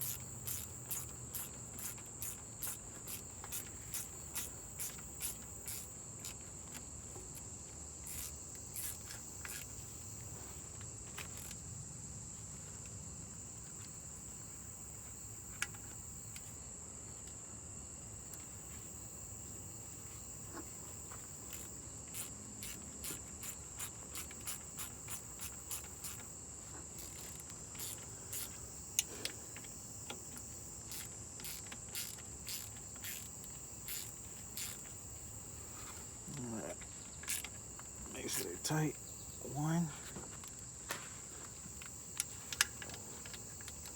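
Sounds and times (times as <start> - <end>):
socket ratchet clicking: 0.0 - 6.4, 21.4 - 26.3, 27.0 - 34.9, 37.2 - 37.6
cricket trilling: 0.0 - 43.9.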